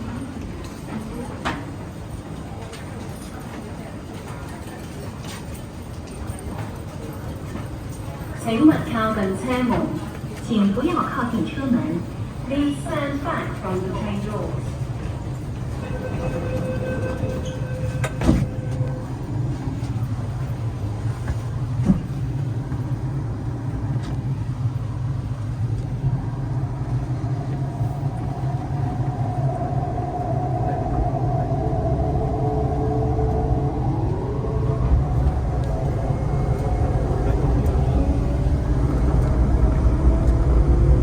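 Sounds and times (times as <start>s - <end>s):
train rumble: 0.0s - 41.0s
door warning tones: 15.6s - 20.2s
train doors thumping shut: 17.9s - 18.8s.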